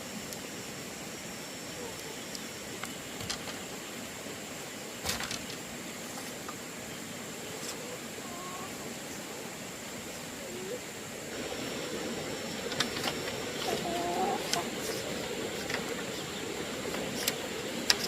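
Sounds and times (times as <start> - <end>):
steady rushing noise: 8.9 - 18.0
gliding animal calls: 10.2 - 18.0.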